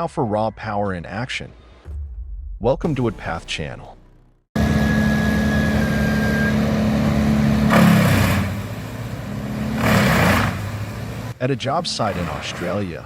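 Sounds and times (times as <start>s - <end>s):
wood chipper running: 4.6s - 11.4s
wood going through chipper: 4.6s - 11.4s.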